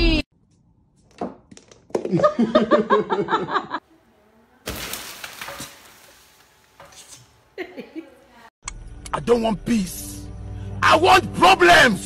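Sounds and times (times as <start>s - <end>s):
loud crash of something breaking: 4.6s - 6.7s.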